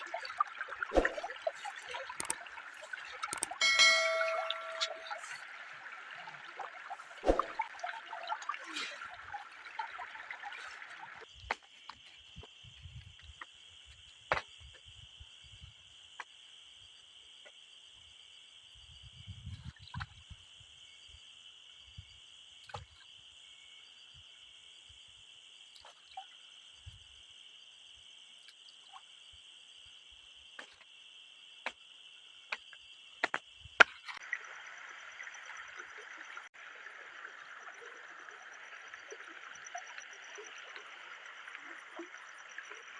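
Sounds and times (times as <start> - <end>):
river water trickling: 0.0 - 11.4, 33.8 - 42.9
insects or frogs calling: 10.6 - 42.9.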